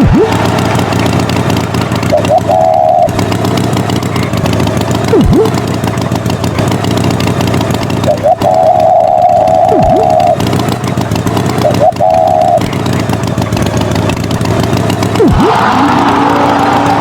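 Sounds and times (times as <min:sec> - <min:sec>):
higher wavering tone: 0:00.0 - 0:03.4, 0:08.1 - 0:10.5, 0:11.6 - 0:12.6
tractor engine running: 0:00.0 - 0:17.0.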